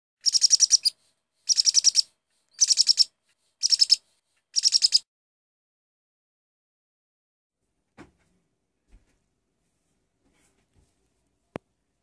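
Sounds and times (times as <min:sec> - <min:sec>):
bird chirping rapidly: 0:00.2 - 0:05.0.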